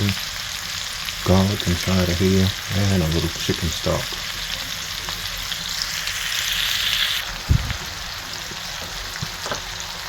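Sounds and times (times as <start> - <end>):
food sizzling in a pot: 0.0 - 10.0
low thump: 7.5 - 7.8.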